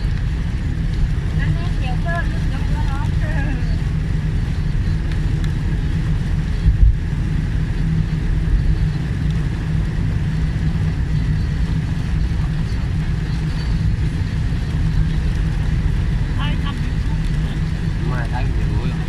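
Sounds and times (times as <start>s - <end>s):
car cabin rumble: 0.0s - 19.0s.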